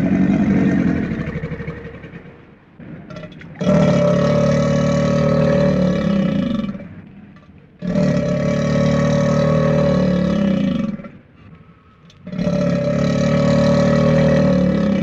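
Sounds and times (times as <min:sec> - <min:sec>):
long animal calls: 0:03.1 - 0:07.0, 0:07.8 - 0:15.0.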